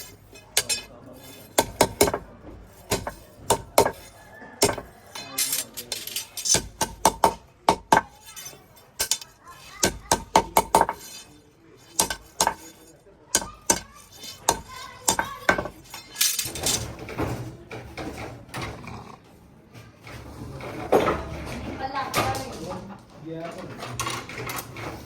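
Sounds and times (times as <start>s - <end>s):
metal parts clinking and knocking: 0.0s - 17.4s.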